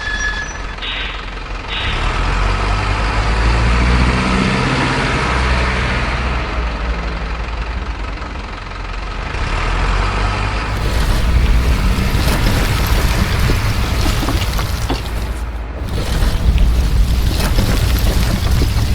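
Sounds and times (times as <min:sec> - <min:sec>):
heavy engine rumbling: 0:10.6 - 0:18.9.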